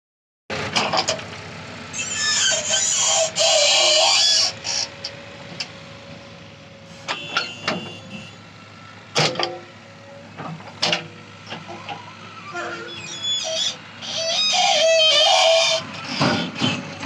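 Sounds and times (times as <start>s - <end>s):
diesel engine running: 0.5s - 17.0s.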